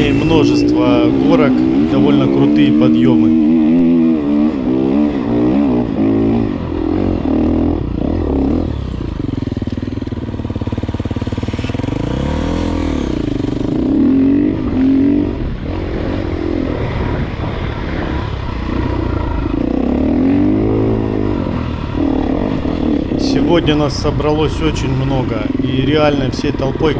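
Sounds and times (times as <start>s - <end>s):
dirt bike engine revving: 0.0s - 17.2s, 17.8s - 26.9s.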